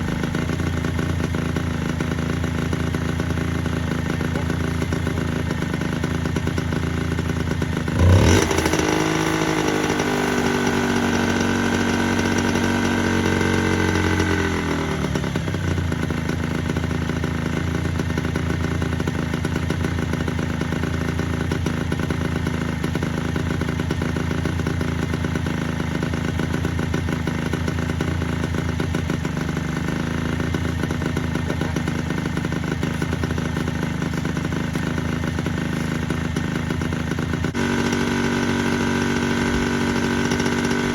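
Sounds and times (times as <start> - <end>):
small motorcycle engine idling: 0.0 - 40.9
engine revving: 7.9 - 15.5, 37.4 - 40.9.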